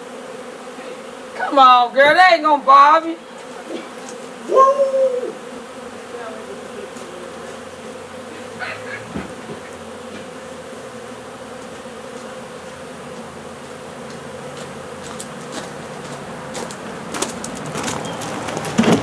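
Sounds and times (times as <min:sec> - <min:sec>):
bee swarm buzzing: 0:00.0 - 0:19.0
brief knock: 0:09.1 - 0:10.3.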